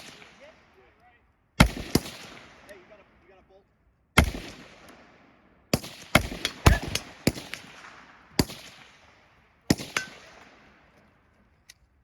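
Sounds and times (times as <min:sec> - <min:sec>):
rifle shots with echo: 0:00.0 - 0:01.0, 0:01.6 - 0:03.4, 0:04.2 - 0:11.0.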